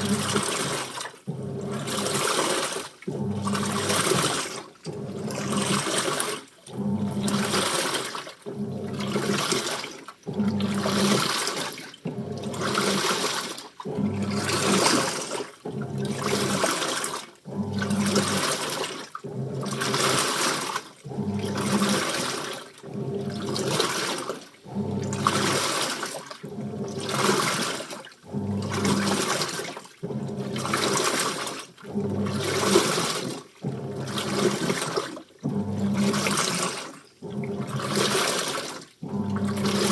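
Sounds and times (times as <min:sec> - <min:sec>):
washing machine drum sloshing: 0:00.0 - 0:39.9
low motor hum: 0:06.6 - 0:07.6, 0:17.5 - 0:18.5, 0:39.0 - 0:39.9.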